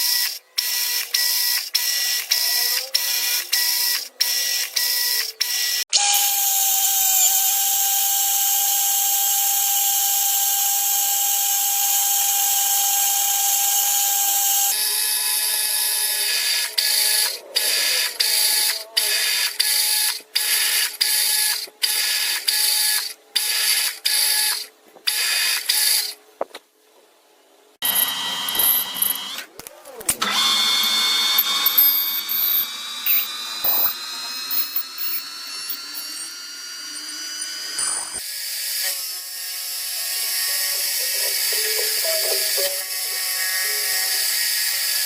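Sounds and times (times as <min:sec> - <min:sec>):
machine tool cutting metal: 0:00.0 - 0:26.1, 0:27.8 - 0:29.5, 0:30.1 - 0:45.0.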